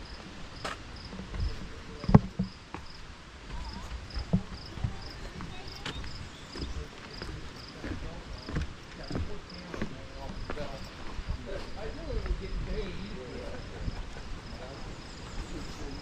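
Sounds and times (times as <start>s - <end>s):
cricket chirping: 0.0s - 16.0s.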